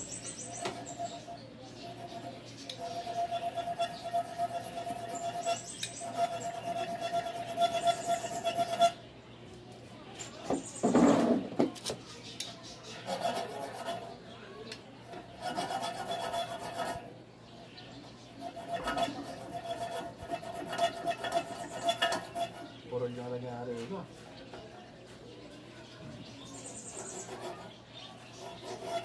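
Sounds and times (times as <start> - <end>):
hacksaw cutting metal pipe: 2.7 - 9.0, 15.4 - 17.0, 18.4 - 22.6, 28.3 - 29.0.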